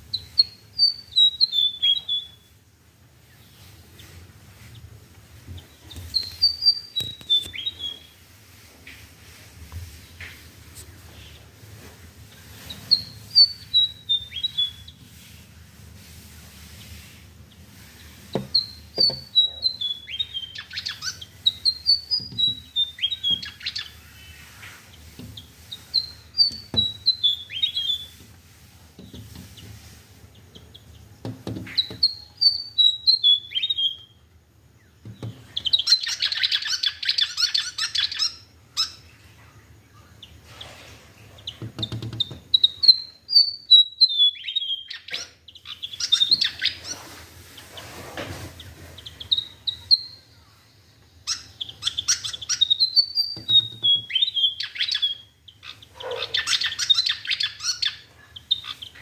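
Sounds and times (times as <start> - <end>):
bird scratchy chatter: 44.9 - 50.2, 51.3 - 59.0.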